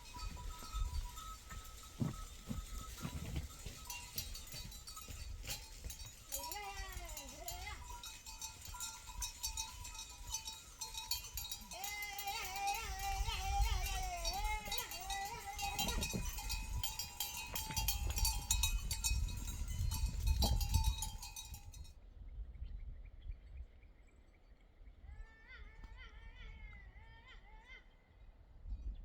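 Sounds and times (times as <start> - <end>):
sheep bells clinking: 0.0 - 22.0.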